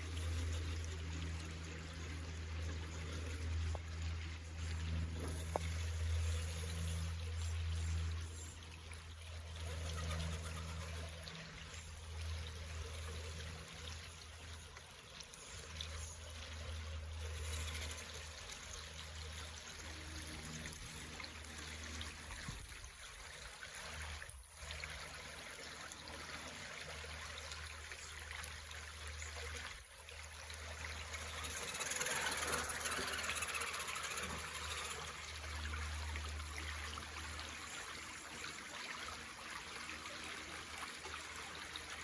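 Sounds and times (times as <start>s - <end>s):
low hum: 0.0s - 23.3s
running water: 0.0s - 42.0s.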